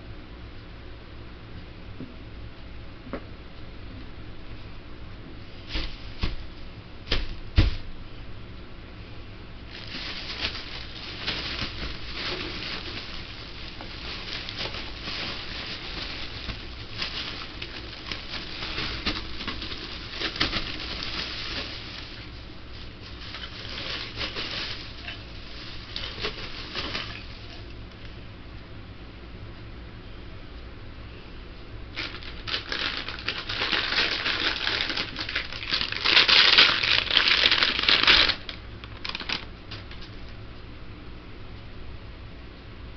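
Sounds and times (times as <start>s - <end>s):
dense crackling and clicking: 32.0s - 40.1s.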